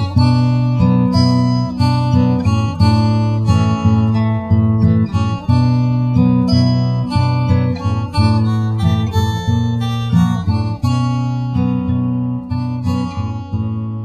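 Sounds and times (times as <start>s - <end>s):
strummed acoustic guitar: 0.0s - 14.0s.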